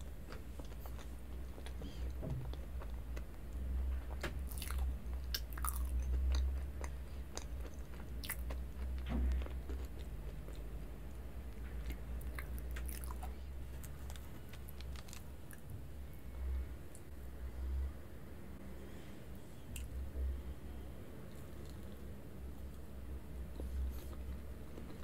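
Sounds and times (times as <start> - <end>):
chewing soft food: 0.0 - 15.7, 23.5 - 25.0
low hum: 0.0 - 25.0.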